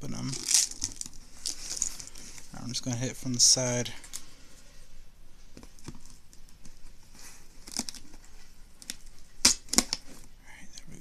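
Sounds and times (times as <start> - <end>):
package crinkling and tearing: 0.3 - 1.9, 7.6 - 8.1.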